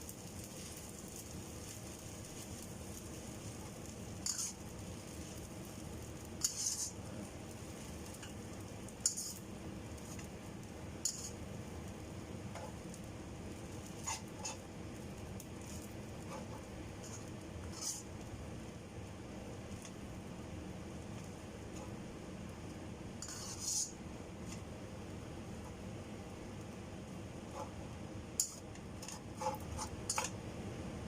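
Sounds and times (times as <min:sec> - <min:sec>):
noodles sizzling in a pan: 0:00.0 - 0:31.0
utensil scraping a pan: 0:04.2 - 0:04.6, 0:06.4 - 0:07.0, 0:09.0 - 0:09.4, 0:11.0 - 0:11.4, 0:14.0 - 0:14.7, 0:15.6 - 0:18.0, 0:23.2 - 0:24.6, 0:28.4 - 0:30.3.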